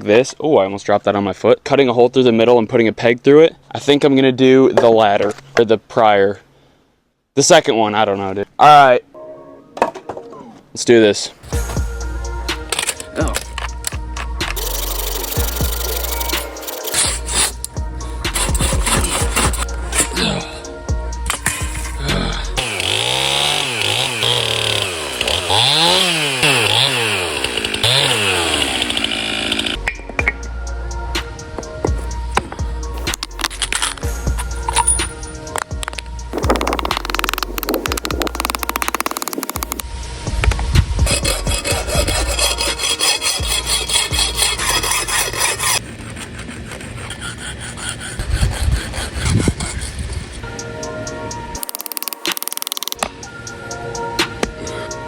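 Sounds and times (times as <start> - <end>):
chainsaw cutting wood: 14.5 - 17.7, 21.3 - 29.8, 36.3 - 39.8, 41.0 - 49.8, 51.6 - 53.0.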